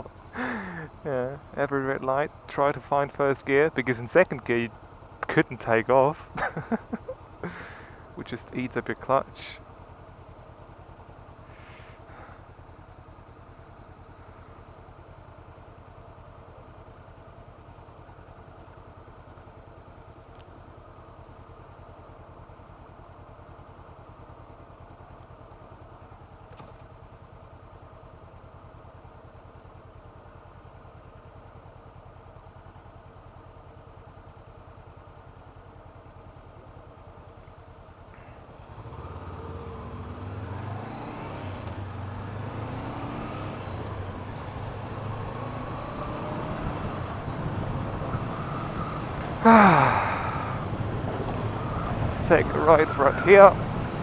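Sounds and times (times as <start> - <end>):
motorcycle engine idling: 0.0 - 40.8, 43.6 - 45.7, 46.8 - 54.0
motorcycle revving and pulling away: 6.3 - 8.2, 21.1 - 54.0.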